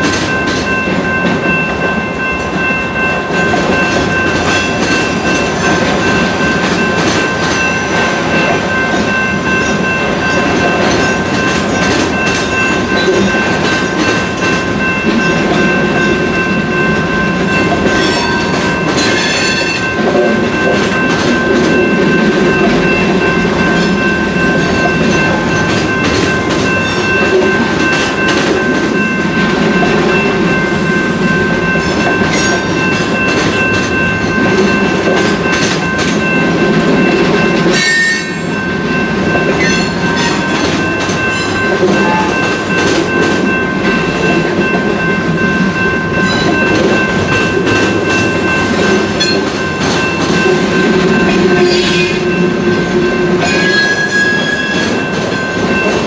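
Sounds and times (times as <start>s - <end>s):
wheels rumbling and clacking: 0.0s - 56.0s
high-pitched flange squeal: 37.7s - 38.6s, 51.4s - 55.0s.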